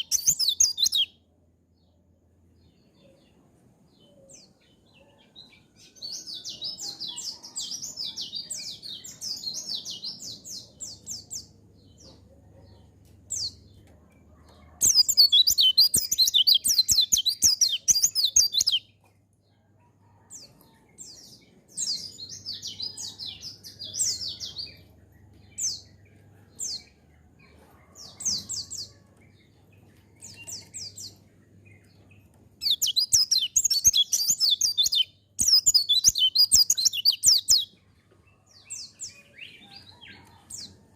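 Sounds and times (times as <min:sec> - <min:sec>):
bird twittering song: 0:00.0 - 0:01.3, 0:06.2 - 0:19.0, 0:28.0 - 0:37.8.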